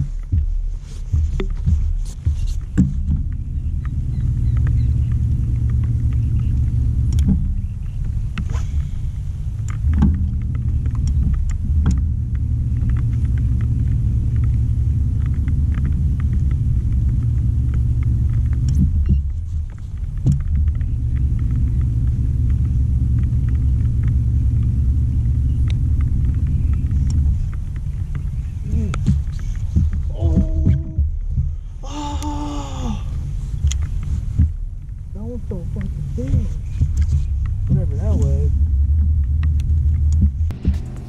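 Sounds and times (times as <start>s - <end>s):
engine rumbling: 0.0s - 41.0s
light clicks: 1.4s - 31.0s.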